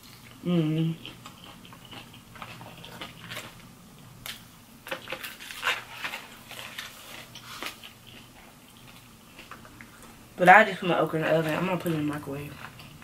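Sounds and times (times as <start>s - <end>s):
person chewing fried chicken: 1.0s - 3.7s, 5.0s - 10.2s
small crunches: 1.2s - 10.1s.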